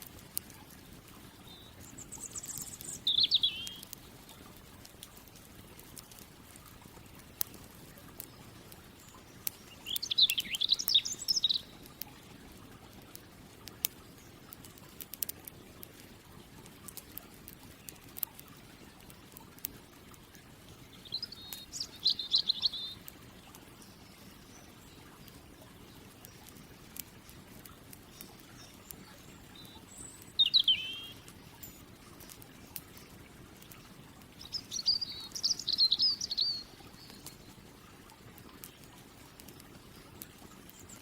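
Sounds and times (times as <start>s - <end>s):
campfire crackling and popping: 0.0s - 41.0s
songbird singing: 0.1s - 12.4s, 20.7s - 37.8s.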